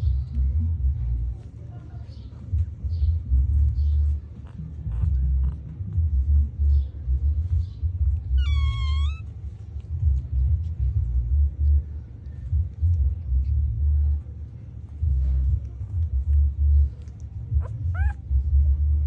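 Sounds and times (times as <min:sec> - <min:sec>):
low rumbling microphone noise: 0:00.0 - 0:19.0
puppy whimpering: 0:08.3 - 0:09.3, 0:17.5 - 0:18.6.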